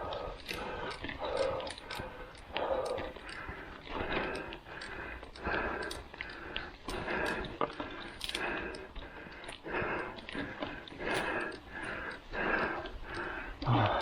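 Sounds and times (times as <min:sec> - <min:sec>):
person breathing hard: 0:00.0 - 0:14.0
small clicks and ticks: 0:00.0 - 0:14.0.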